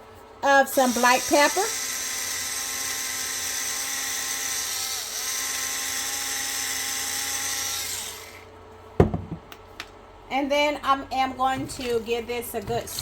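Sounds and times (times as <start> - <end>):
small electric motor whirring: 0.7 - 8.5.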